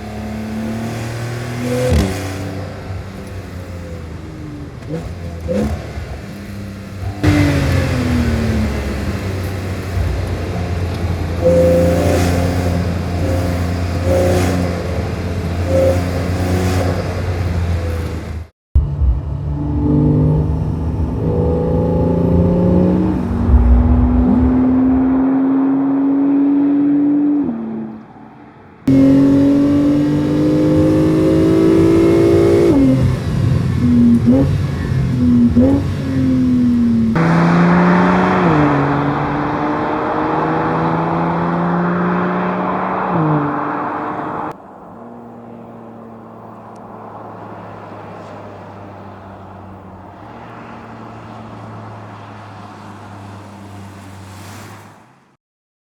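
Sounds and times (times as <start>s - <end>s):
sports car exhaust accelerating: 0.0s - 28.1s, 28.8s - 52.4s
engine throttle blips: 0.0s - 28.2s, 28.8s - 44.6s.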